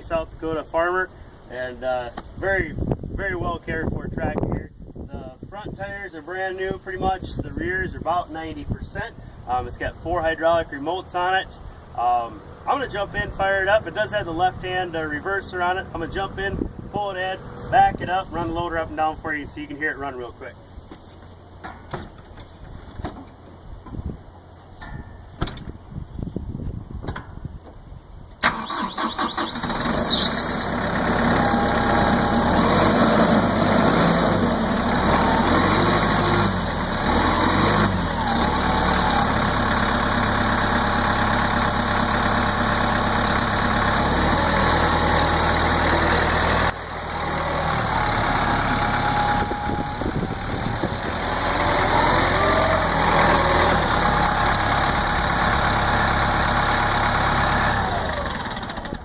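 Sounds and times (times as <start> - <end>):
tractor diesel engine running: 6.7 - 20.6, 28.4 - 59.0.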